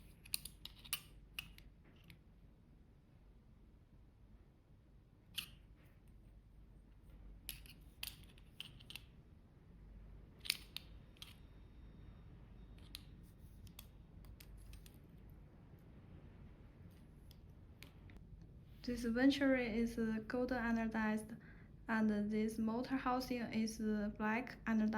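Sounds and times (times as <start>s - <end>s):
small metal objects clicking: 0.0s - 2.2s
low room hum: 0.0s - 24.9s.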